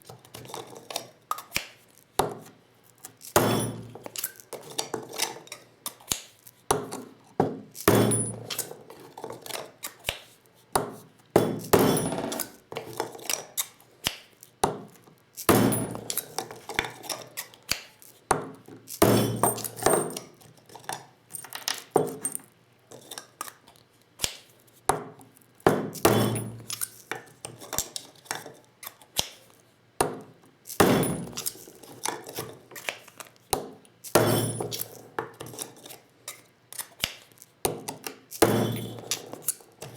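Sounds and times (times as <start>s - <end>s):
hammer knocking on metal tools: 3.4s - 4.0s, 7.4s - 8.4s, 15.5s - 16.2s, 25.7s - 26.6s, 30.8s - 31.4s, 34.1s - 34.8s, 38.4s - 39.0s
metallic clinks and clicks: 18.9s - 20.3s, 30.7s - 32.4s.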